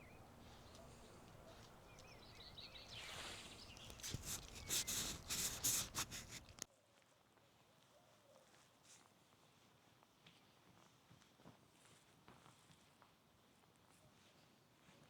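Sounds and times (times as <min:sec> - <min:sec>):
small bird chirping: 0:00.0 - 0:06.5
loud crackling rustles: 0:00.0 - 0:06.7.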